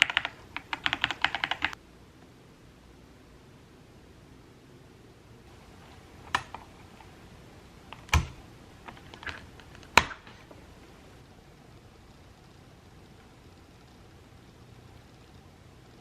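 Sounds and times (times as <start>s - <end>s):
mechanical keyboard key clicks: 0.0s - 1.8s, 6.2s - 6.7s.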